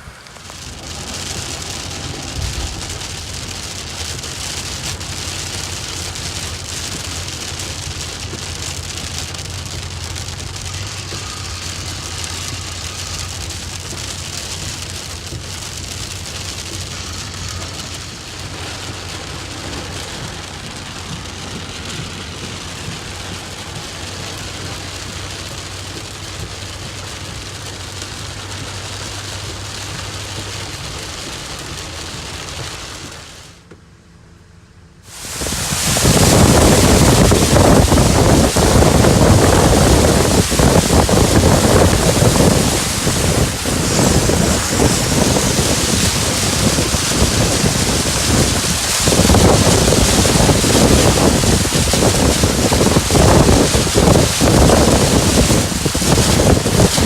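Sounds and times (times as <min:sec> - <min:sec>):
heavy rain pattering: 0:00.0 - 0:33.7, 0:35.0 - 0:57.0.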